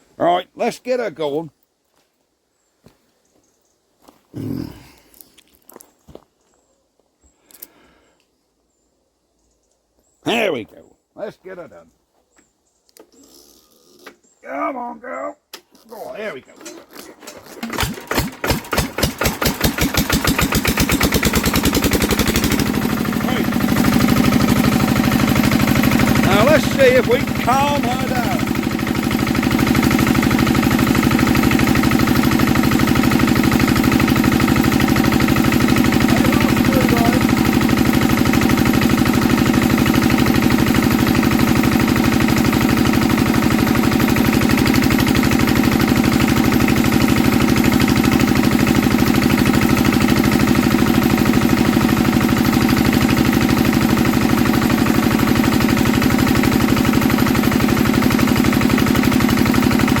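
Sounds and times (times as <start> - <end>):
diesel engine running: 16.7 - 60.0.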